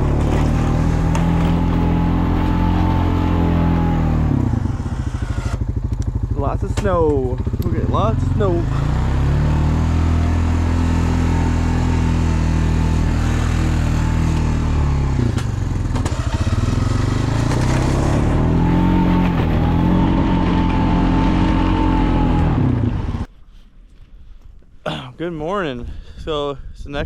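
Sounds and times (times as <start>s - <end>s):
snowplow engine running: 0.0s - 23.3s.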